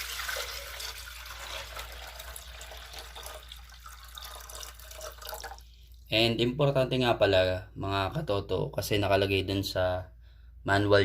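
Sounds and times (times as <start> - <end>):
water pouring and splashing: 0.0 - 6.1.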